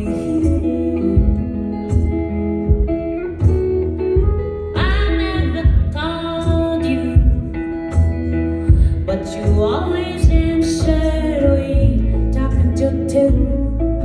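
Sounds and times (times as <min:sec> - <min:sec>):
live band guitar instrumental: 0:00.0 - 0:14.0
low thumping beat: 0:00.0 - 0:14.0.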